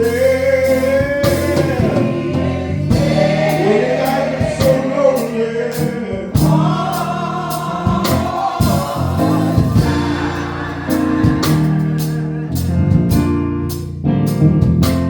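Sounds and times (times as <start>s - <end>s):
band bass and drums: 0.0s - 15.0s
choir holding a note: 1.4s - 13.2s.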